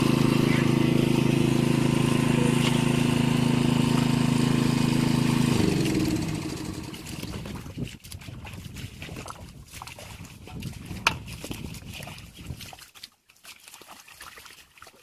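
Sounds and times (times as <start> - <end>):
small engine running and winding down: 0.0 - 7.5.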